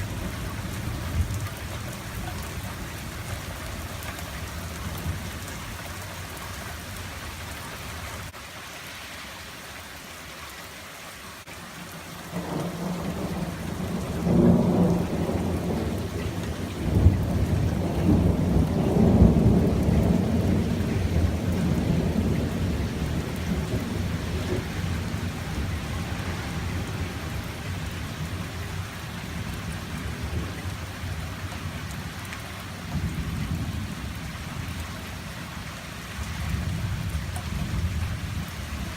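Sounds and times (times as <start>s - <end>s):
steady rain falling: 0.0s - 38.9s
thunder rolling: 12.4s - 28.8s.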